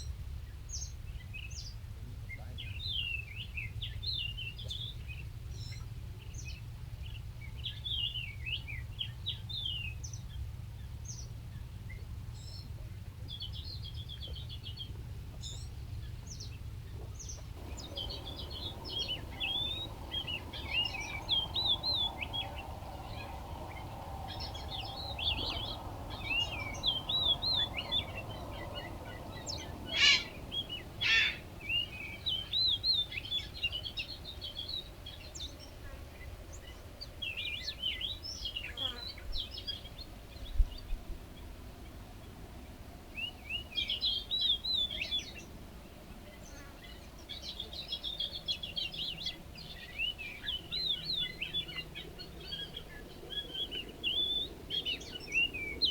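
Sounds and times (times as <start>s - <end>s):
low steady rumble: 3.8s - 38.1s
small birds chirping: 11.0s - 55.9s
sharp bird calls: 17.6s - 34.0s.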